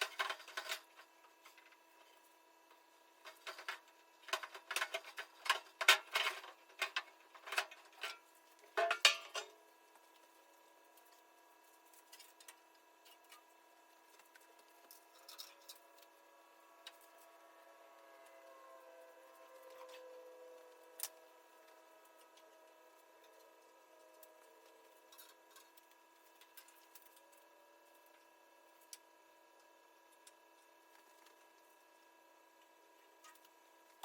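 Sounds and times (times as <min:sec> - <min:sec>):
tools and metal parts clattering: 0:03.3 - 0:09.6, 0:14.9 - 0:15.8.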